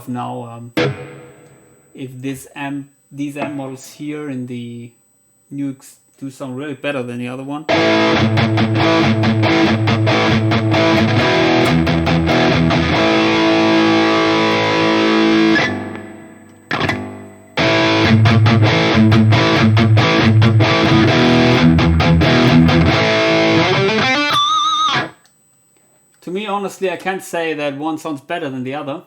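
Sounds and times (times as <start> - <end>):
distorted electric guitar riff: 0.8 - 2.2, 3.3 - 4.0, 7.7 - 25.2.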